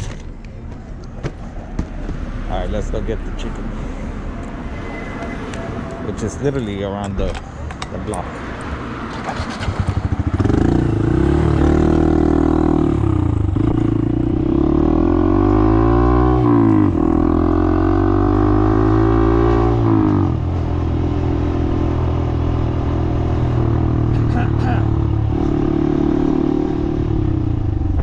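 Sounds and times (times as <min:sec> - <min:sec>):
motorcycle engine accelerating: 0:09.1 - 0:28.0.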